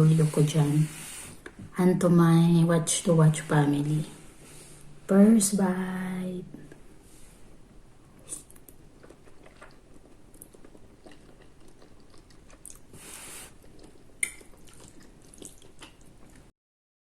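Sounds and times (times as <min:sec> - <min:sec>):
person chewing food: 0:08.1 - 0:16.5
mouth clicks: 0:14.2 - 0:14.5.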